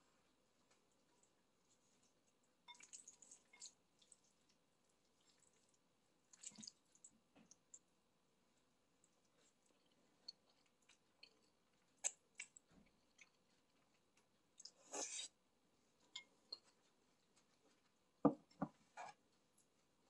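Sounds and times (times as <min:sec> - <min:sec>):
wet chewing and lip smacks: 0:09.4 - 0:14.8.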